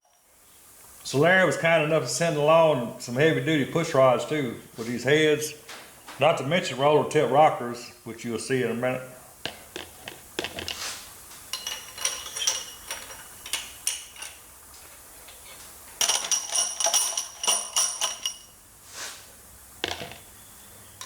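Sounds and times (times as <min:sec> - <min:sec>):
metal engine parts clinking: 0:11.5 - 0:14.5, 0:15.2 - 0:18.6
short ringing metallic tones: 0:11.6 - 0:14.4.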